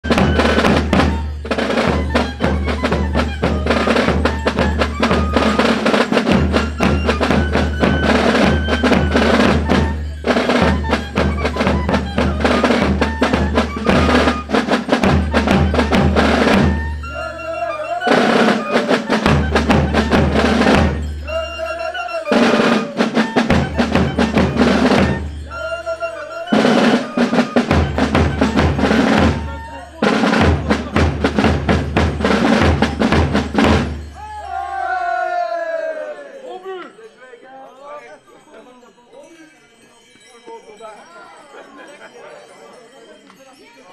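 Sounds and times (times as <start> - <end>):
snare drum rolls: 0.0 - 17.0, 26.5 - 34.0
fife playing high notes: 0.0 - 34.9
bass drum beat: 27.7 - 34.2.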